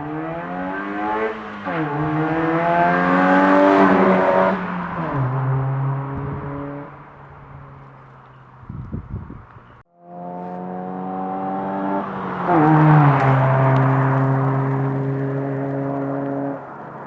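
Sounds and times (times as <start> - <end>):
wind noise: 3.7 - 9.8.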